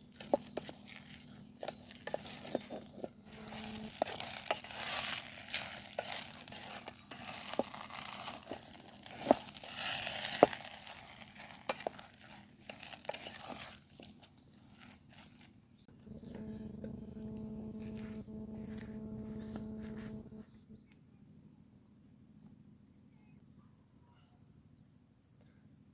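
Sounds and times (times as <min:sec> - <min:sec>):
insects chirping: 0:00.0 - 0:25.3
steady low hum: 0:15.8 - 0:20.9.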